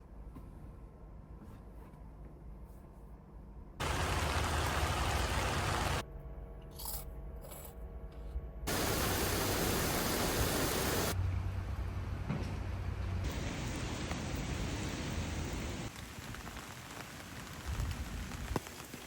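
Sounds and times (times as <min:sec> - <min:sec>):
heavy rain: 0:03.8 - 0:06.0, 0:08.7 - 0:11.2, 0:13.3 - 0:19.0.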